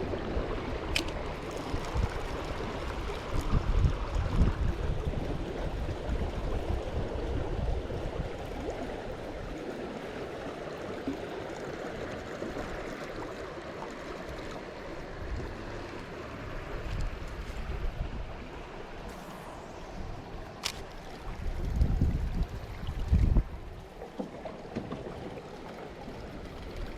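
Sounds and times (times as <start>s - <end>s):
wind gusting on microphone: 0.0s - 8.8s, 16.6s - 23.9s
creek water rushing: 0.0s - 26.9s.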